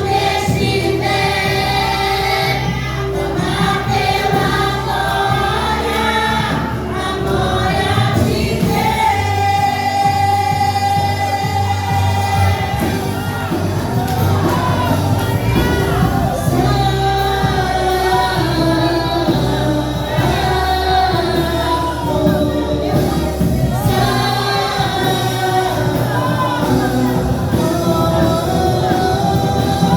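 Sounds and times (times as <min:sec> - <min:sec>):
band with bass line: 0:00.0 - 0:29.9
group singing worship song: 0:00.0 - 0:29.9.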